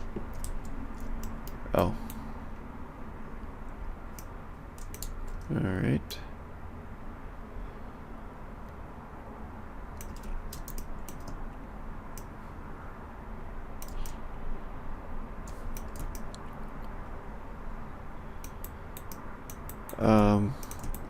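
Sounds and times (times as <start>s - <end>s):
keyboard keys clicking: 0.0s - 2.2s, 10.0s - 11.4s, 13.8s - 14.2s, 15.5s - 16.5s, 18.4s - 21.0s
low background hum: 0.0s - 21.0s.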